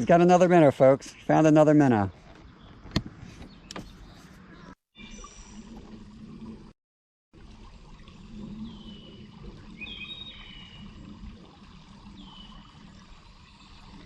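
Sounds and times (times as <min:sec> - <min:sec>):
outdoor background noise: 0:00.0 - 0:06.8.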